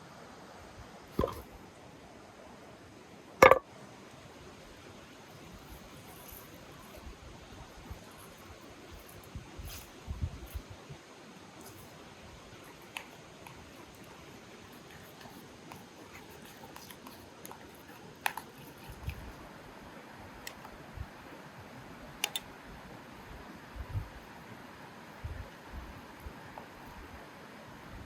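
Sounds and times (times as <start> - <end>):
steady background hiss: 0.0 - 28.0
light clicks and taps: 14.7 - 19.3.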